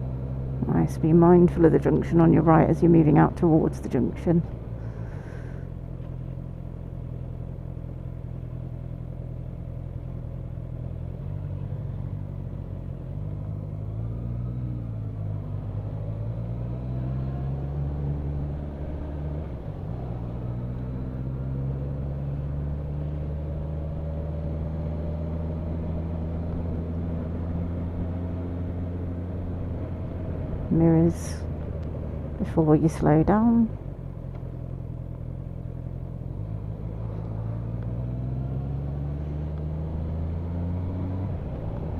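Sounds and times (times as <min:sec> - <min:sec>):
low road rumble: 0:00.0 - 0:41.9
motorcycle engine running: 0:17.2 - 0:40.5.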